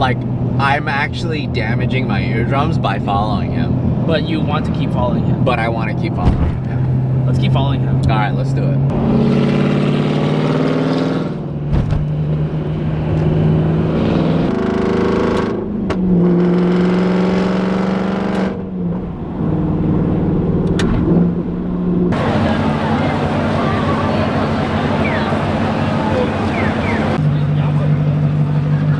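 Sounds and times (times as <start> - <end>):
loud car exhaust revving: 8.7 - 28.9.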